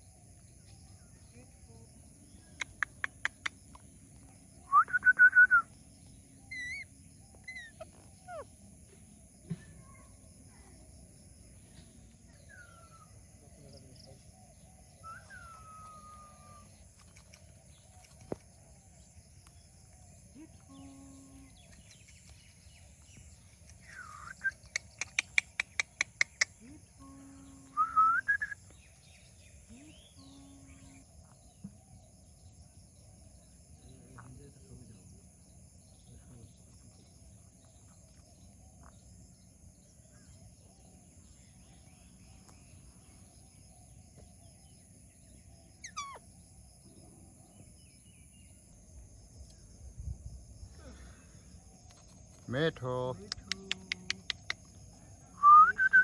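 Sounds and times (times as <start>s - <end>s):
faint bird chirps: 0.0s - 56.0s
whistled bird call: 4.6s - 5.8s, 6.5s - 8.5s, 15.0s - 16.7s, 23.8s - 28.7s, 45.8s - 46.2s, 55.3s - 56.0s.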